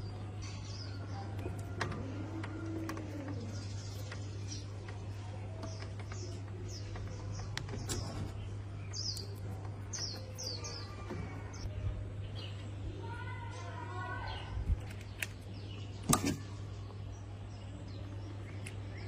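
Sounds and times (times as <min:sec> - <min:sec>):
small bird chirping: 0:00.0 - 0:19.0
scattered clicks: 0:01.4 - 0:08.2.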